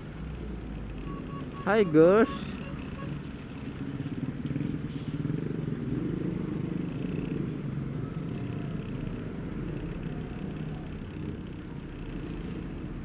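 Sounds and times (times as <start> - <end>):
heavy truck traffic: 0.0 - 13.0
road noise: 0.0 - 13.0.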